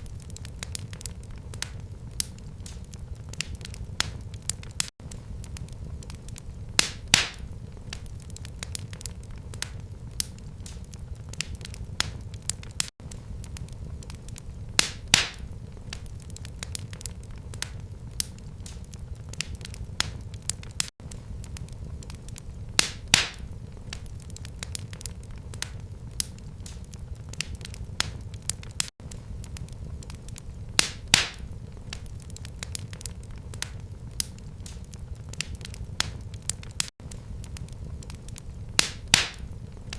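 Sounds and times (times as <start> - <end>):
fire popping: 0.0 - 39.9
wood fire crackling: 0.0 - 39.9.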